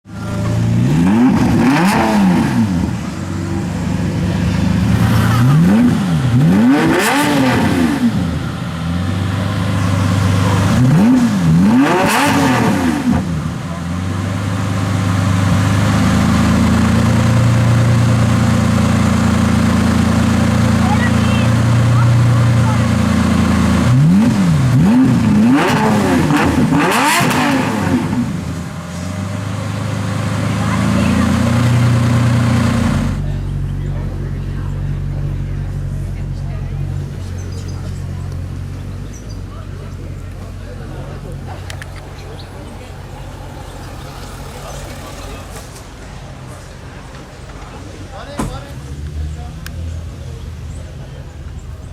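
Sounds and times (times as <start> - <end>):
car engine idling: 0.0 - 51.9
engine revving: 0.1 - 47.6.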